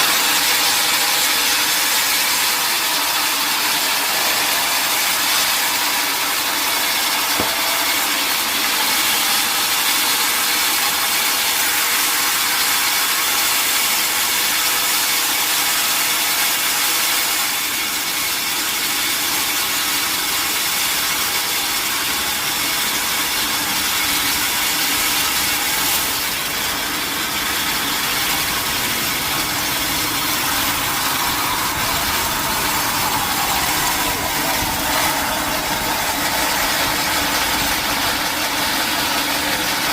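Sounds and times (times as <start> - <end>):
saw cutting through log: 0.0 - 39.9
machinery running: 25.5 - 39.9.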